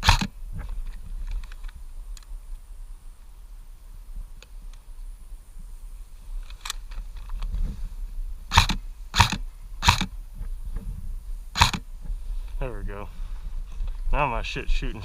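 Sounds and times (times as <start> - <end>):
airsoft gun shots: 0.0 - 0.3, 8.5 - 10.1, 11.6 - 11.8.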